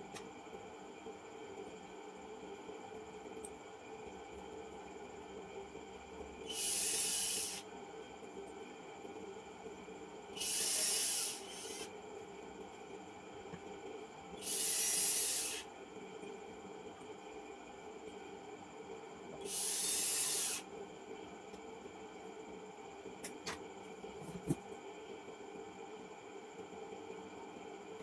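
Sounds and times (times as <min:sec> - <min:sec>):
aerosol spray hissing: 0:14.4 - 0:15.6, 0:19.5 - 0:20.6.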